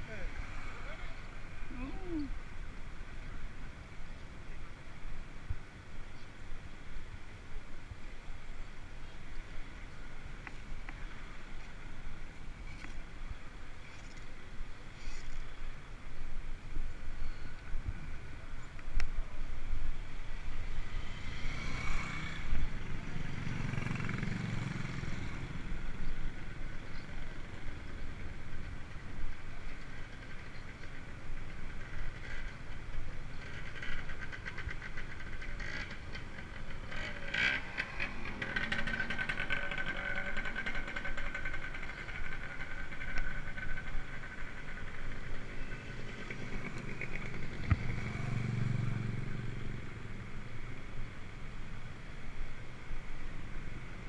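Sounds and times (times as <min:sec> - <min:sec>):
road noise: 0:00.0 - 0:54.0
vehicles passing: 0:00.0 - 0:54.0.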